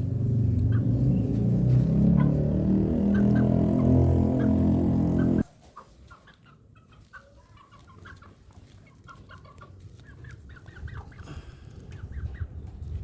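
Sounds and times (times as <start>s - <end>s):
chickens clucking softly: 4.4s - 12.9s.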